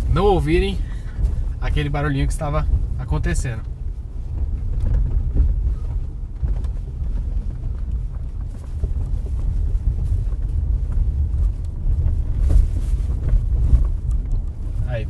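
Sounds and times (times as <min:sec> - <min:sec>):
road and tyre rumble: 0:00.0 - 0:15.0.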